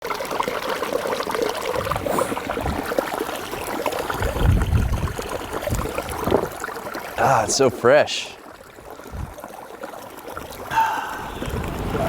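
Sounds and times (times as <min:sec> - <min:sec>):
water trickling and splashing: 0:00.0 - 0:12.0
low thumps: 0:10.8 - 0:12.0.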